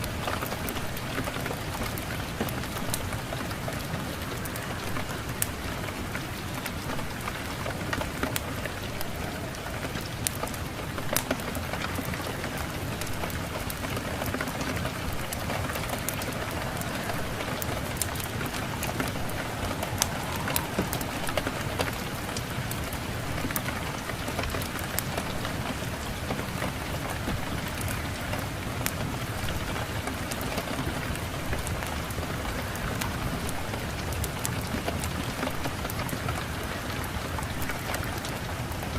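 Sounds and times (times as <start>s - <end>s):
steady rain: 0.0s - 38.9s
sharp pops and crackles: 7.9s - 25.4s.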